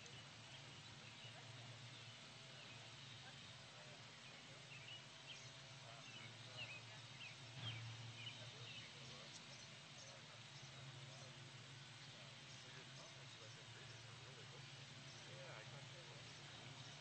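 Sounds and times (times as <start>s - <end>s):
small birds chirping: 0.0s - 17.0s
steady low hum: 0.0s - 17.0s.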